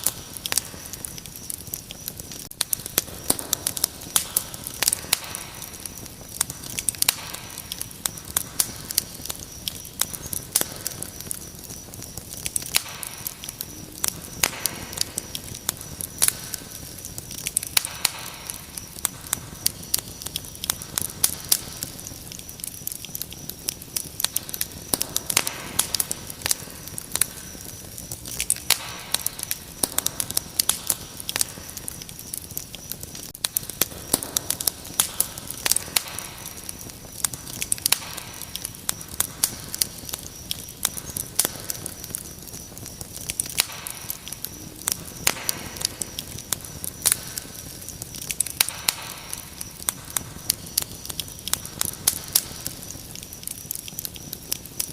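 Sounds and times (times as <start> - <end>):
crickets trilling: 0.0 - 54.9
wood fire crackling: 0.0 - 54.9.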